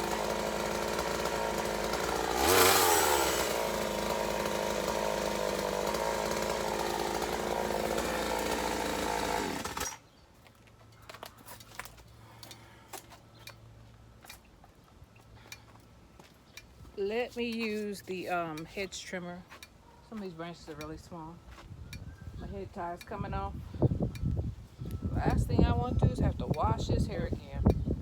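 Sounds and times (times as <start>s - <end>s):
chainsaw running: 0.0s - 10.1s.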